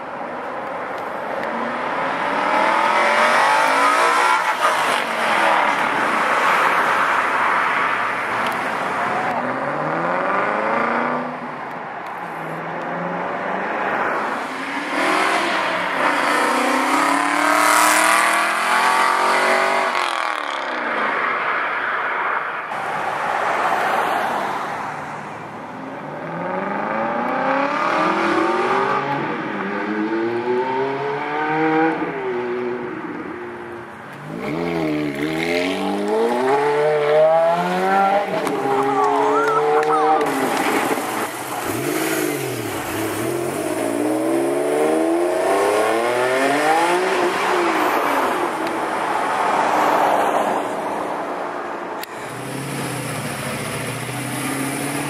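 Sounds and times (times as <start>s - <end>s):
car engines accelerating hard: 12.4s - 21.0s, 22.7s - 33.2s, 34.1s - 55.0s.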